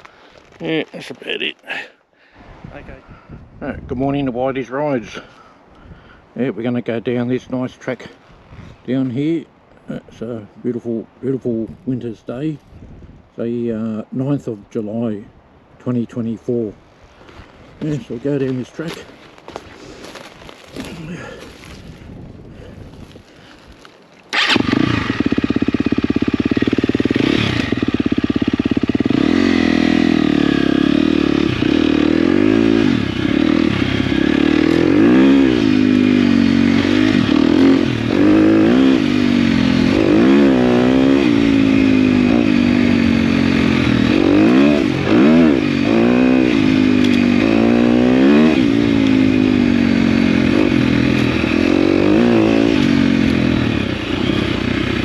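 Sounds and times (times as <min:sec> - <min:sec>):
dirt bike engine revving: 0:24.3 - 0:55.0.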